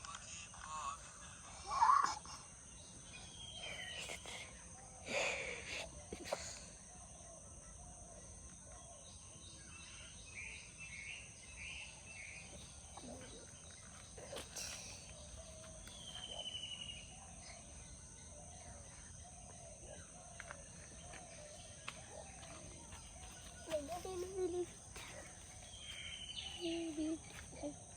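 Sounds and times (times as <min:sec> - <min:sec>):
high insect drone: 0:00.0 - 0:27.9
bird chirps: 0:08.9 - 0:27.9.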